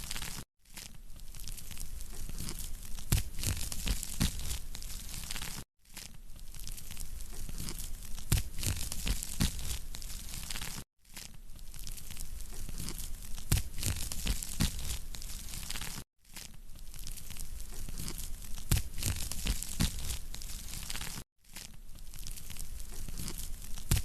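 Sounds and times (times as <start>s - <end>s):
wood fire crackling and popping: 18.0s - 21.2s.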